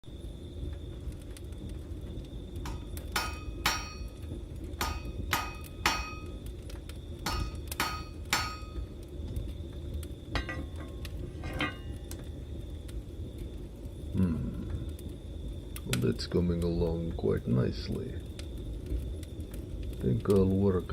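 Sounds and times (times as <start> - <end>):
low rumble: 0.0 - 20.2
hammer striking metal on anvil: 2.7 - 4.2, 4.8 - 6.3, 7.3 - 8.8
light metal clinks: 10.4 - 12.0.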